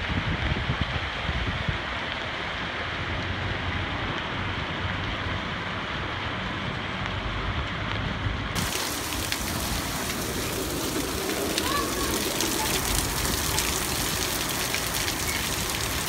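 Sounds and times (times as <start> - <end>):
heavy rain on street: 0.0 - 16.0
traffic rumble: 0.7 - 16.0
raindrops ticking: 8.6 - 16.0.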